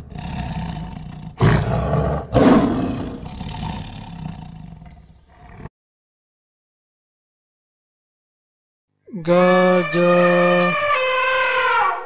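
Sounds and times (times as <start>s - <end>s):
tiger roaring: 0.0s - 5.7s.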